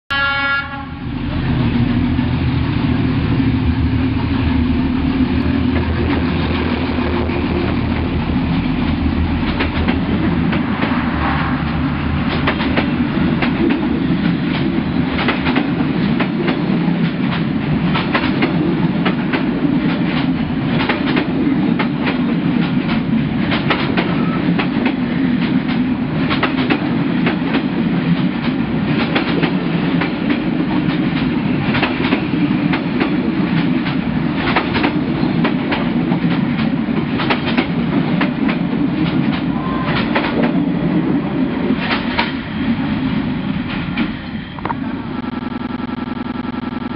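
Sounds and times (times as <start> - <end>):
heavy rumble of train carriages: 0.2 - 45.1
wheels clacking over rail joints: 5.4 - 40.7, 41.6 - 42.5.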